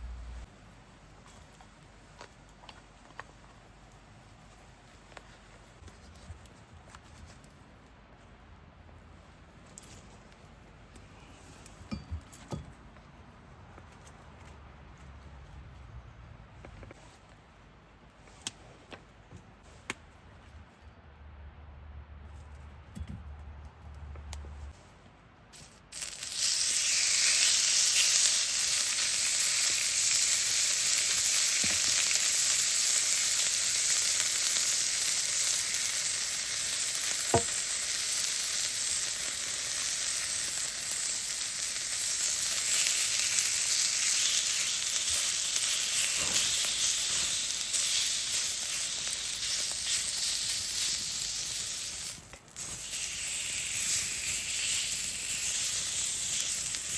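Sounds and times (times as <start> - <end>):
meat sizzling over fire: 25.6 - 56.9.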